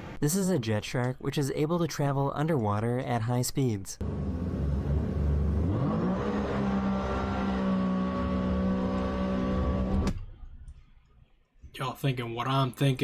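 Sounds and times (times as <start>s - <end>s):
watercraft engine revving: 4.0s - 10.1s.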